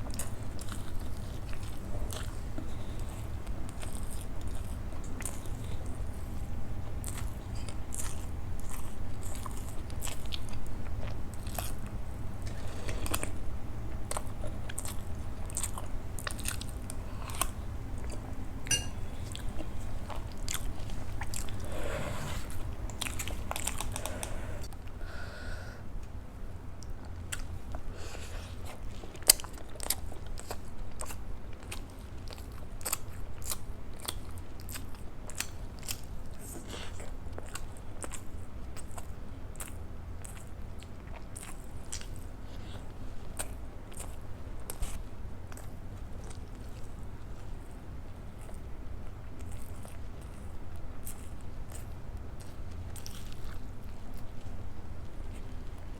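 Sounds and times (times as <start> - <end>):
person chewing: 0.0 - 24.8, 26.8 - 47.8, 48.4 - 55.9
low hum: 0.1 - 24.8.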